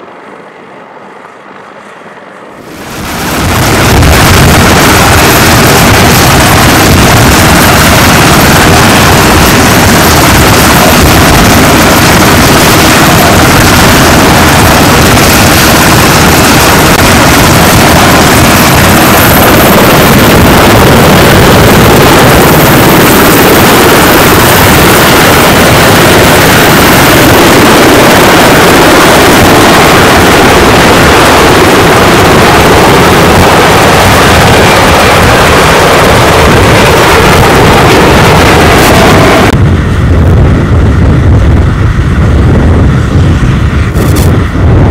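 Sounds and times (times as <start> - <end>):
faint high whine: 0.0 - 44.9
helicopter engine and rotor roar: 0.0 - 44.9.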